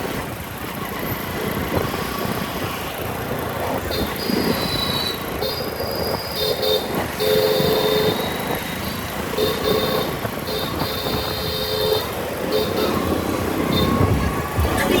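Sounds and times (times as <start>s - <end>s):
road noise: 0.0s - 15.0s
vehicle horns blasting: 3.9s - 5.7s, 6.4s - 8.4s, 9.3s - 15.0s.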